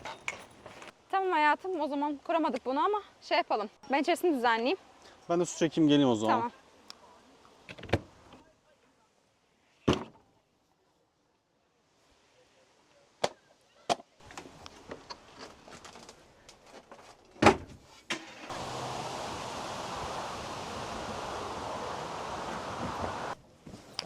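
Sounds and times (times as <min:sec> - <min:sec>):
light clatter of handled things: 0:00.0 - 0:01.0, 0:13.2 - 0:18.5, 0:23.6 - 0:24.0
steady rushing noise with low hum: 0:18.5 - 0:23.6.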